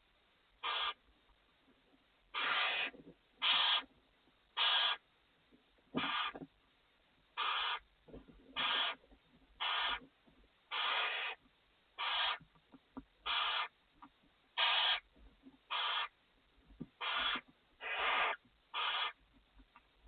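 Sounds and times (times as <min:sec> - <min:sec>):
owl hissing call: 0:00.6 - 0:01.0, 0:02.3 - 0:03.9, 0:04.6 - 0:05.0, 0:06.0 - 0:06.4, 0:07.4 - 0:07.8, 0:08.6 - 0:09.0, 0:09.6 - 0:10.0, 0:10.7 - 0:11.4, 0:12.0 - 0:12.4, 0:13.2 - 0:13.7, 0:14.6 - 0:15.0, 0:15.7 - 0:16.1, 0:17.0 - 0:19.2.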